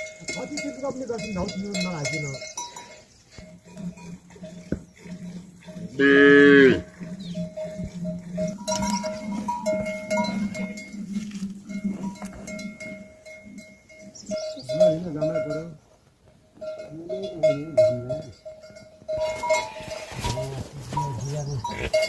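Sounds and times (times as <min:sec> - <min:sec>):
livestock bells clinking: 0:00.0 - 0:22.0
cow mooing: 0:03.5 - 0:13.7.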